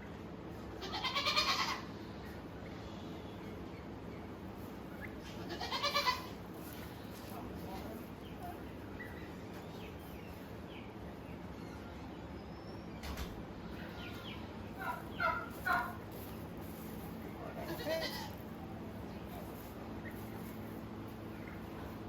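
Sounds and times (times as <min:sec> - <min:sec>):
steady low hum: 0:00.0 - 0:22.0
goat bleating: 0:00.8 - 0:01.9, 0:05.2 - 0:06.4, 0:17.5 - 0:18.5.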